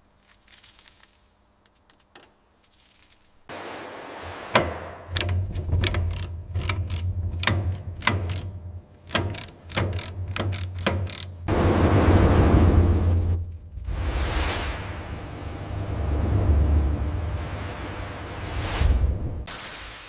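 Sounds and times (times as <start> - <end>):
metal clicks and knocks: 4.6 - 11.5
steady low hum: 11.3 - 19.5.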